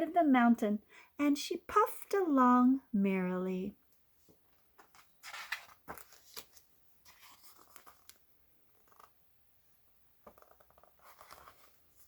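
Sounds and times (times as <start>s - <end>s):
paper pages rustling: 4.5s - 9.2s, 10.2s - 12.0s.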